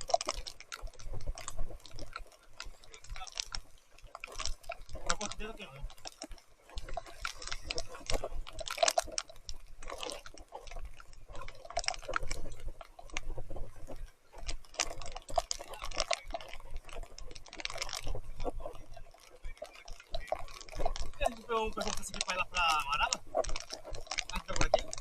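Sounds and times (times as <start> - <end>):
tyres squelching in mud: 0.0 - 25.0
heavy rain: 18.6 - 25.0.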